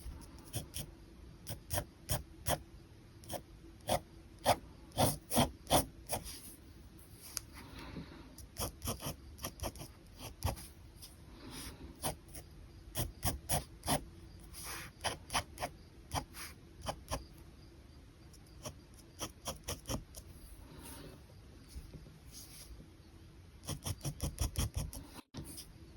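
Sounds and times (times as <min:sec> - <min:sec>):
pen scratching on paper: 0:00.0 - 0:00.9, 0:01.5 - 0:02.6, 0:03.2 - 0:07.4, 0:08.4 - 0:17.3, 0:18.4 - 0:21.0, 0:23.6 - 0:25.7.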